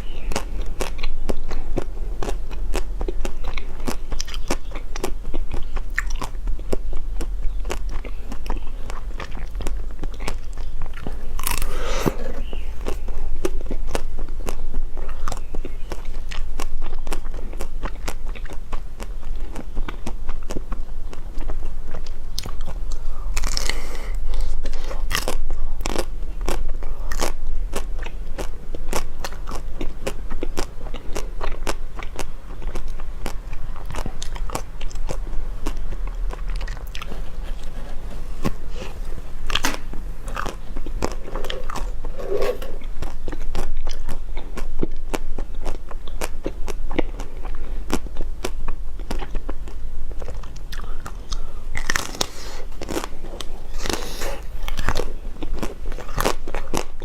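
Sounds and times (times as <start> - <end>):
crunching and chewing food: 0.0 - 57.0
low hum: 31.9 - 44.3.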